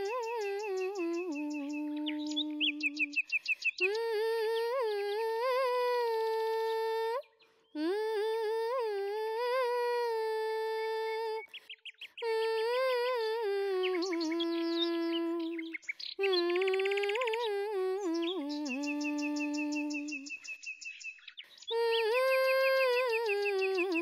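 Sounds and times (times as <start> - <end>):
woman humming a melody: 0.0 - 3.2, 3.8 - 7.2, 7.8 - 11.4, 12.2 - 20.4, 21.7 - 24.0
birds chirping: 0.0 - 4.8, 11.3 - 24.0.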